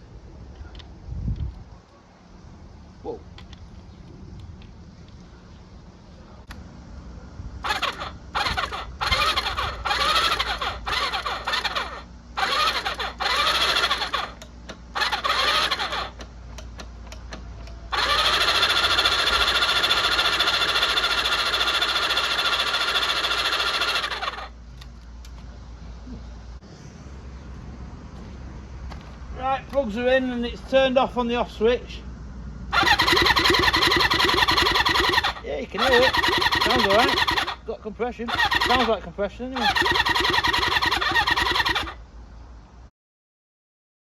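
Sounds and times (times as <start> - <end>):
electric starter cranking engine: 7.6 - 24.6, 32.7 - 42.0.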